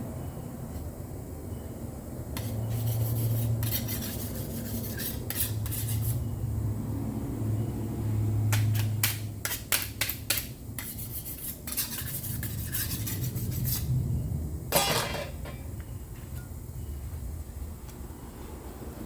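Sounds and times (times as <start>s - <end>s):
steady low hum: 0.0s - 19.0s
metal spreader scraping filler: 2.4s - 6.2s, 10.8s - 13.9s.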